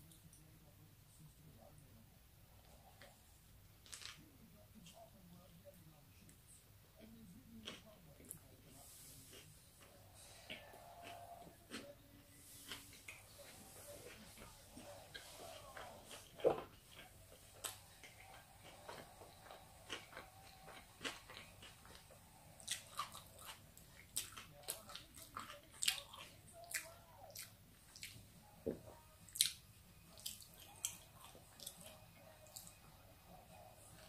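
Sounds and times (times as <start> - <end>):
person chewing food: 7.6 - 32.8.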